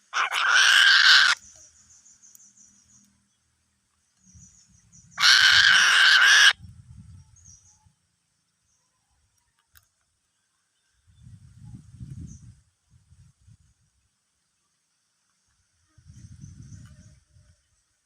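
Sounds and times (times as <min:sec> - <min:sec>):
eagle screeching: 0:00.1 - 0:01.4, 0:05.2 - 0:06.6.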